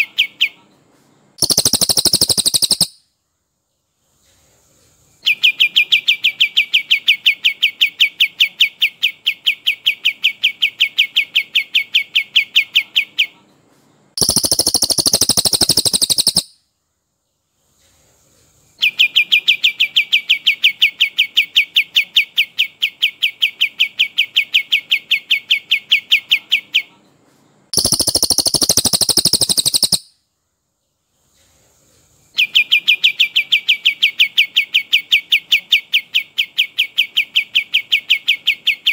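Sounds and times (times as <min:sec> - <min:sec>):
bird buzzy rattle: 0:01.4 - 0:03.0, 0:14.2 - 0:16.5, 0:27.8 - 0:30.1
bird trilling rapid notes: 0:01.4 - 0:03.0, 0:14.2 - 0:16.5, 0:27.8 - 0:30.1.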